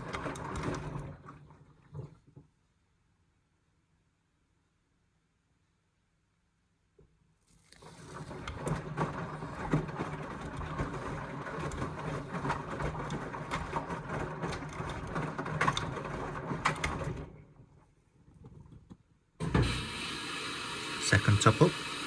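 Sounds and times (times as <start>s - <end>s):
washing machine motor humming: 0.0s - 2.0s, 7.8s - 17.4s, 19.4s - 22.0s
clicks and knocks of tumbling load: 0.0s - 2.5s, 7.8s - 19.0s.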